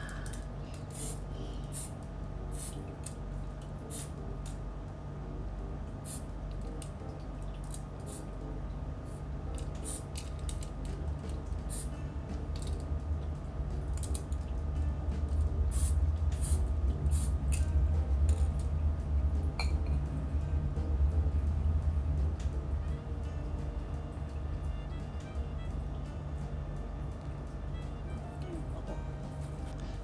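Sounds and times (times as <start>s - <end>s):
spray can hissing: 0.9s - 2.8s, 3.8s - 4.2s, 6.0s - 6.2s, 9.8s - 10.3s, 11.6s - 12.0s, 15.7s - 17.4s
low rumble: 11.0s - 27.9s.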